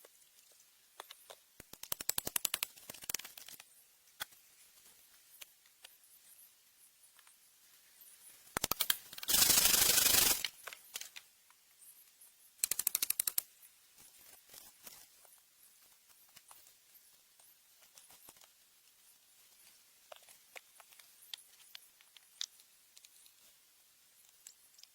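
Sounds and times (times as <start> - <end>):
faint scattered ticks: 0.0 - 24.9
rapid clicking rattle: 8.6 - 10.5, 12.6 - 13.4.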